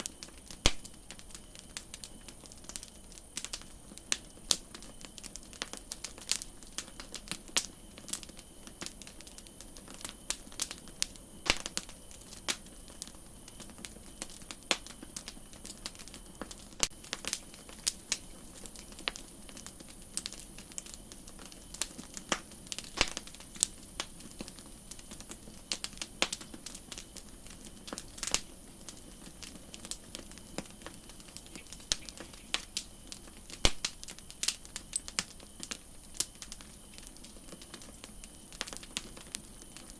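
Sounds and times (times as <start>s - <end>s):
campfire crackling and popping: 0.0s - 39.9s
faint high hiss: 7.8s - 34.3s.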